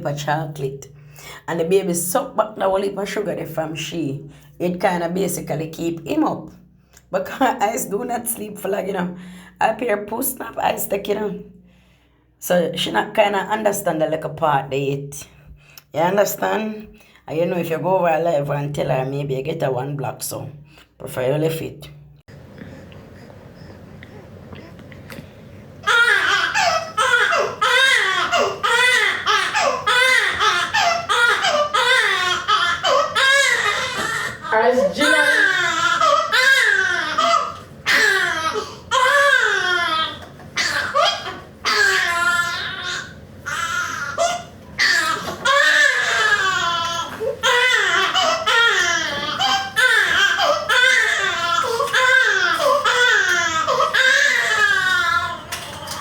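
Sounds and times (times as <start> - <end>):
infant crying: 25.8 - 56.0.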